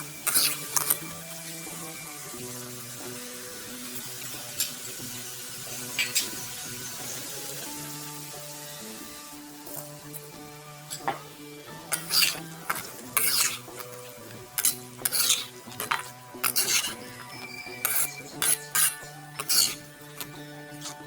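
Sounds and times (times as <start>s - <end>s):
metal utensil scraping a pan: 0.0s - 8.3s, 9.2s - 21.0s
background music: 0.0s - 21.0s.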